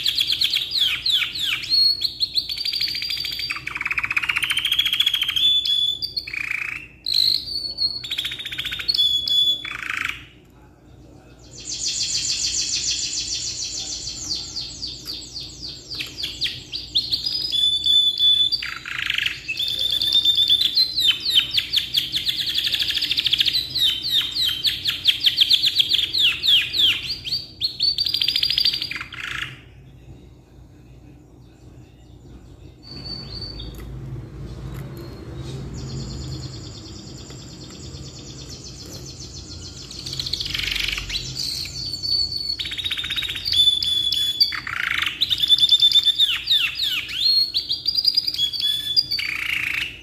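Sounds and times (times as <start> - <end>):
canary singing rolling trills: 0.0 - 10.4, 11.0 - 30.1, 30.7 - 50.0.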